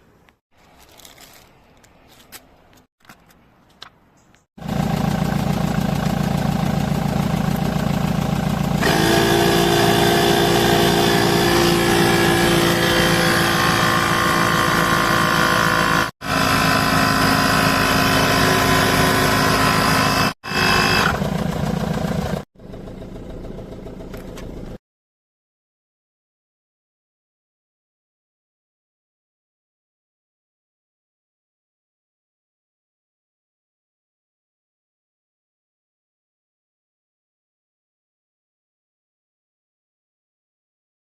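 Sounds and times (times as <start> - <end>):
electric air compressor running: 4.6 - 22.5
steady whining tones: 8.8 - 21.2.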